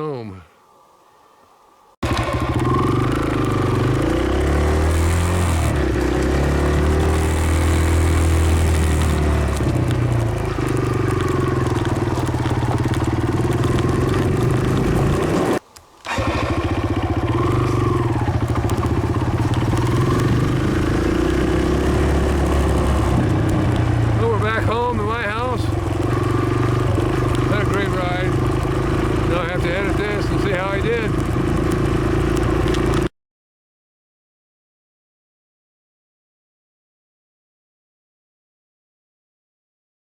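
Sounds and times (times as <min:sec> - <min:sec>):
dirt bike engine revving: 0:02.0 - 0:33.1.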